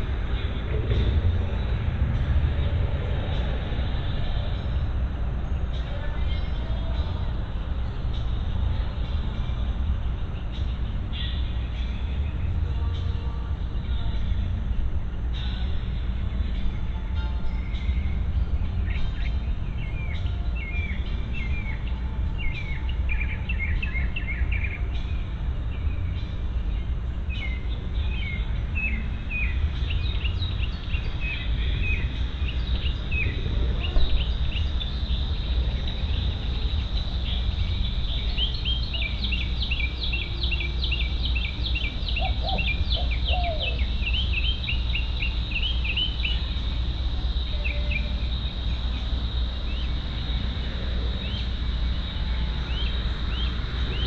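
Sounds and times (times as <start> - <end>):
constant low rumble: 0.0 - 54.0
songbirds chirping: 0.0 - 54.0
cricket trill: 17.2 - 54.0.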